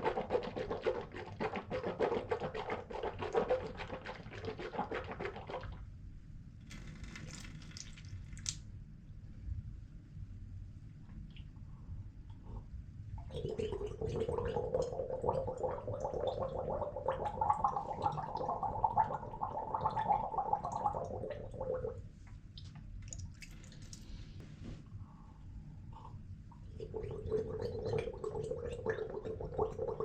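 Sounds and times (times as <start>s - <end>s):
person gargling water: 13.3s - 22.0s, 26.7s - 30.0s.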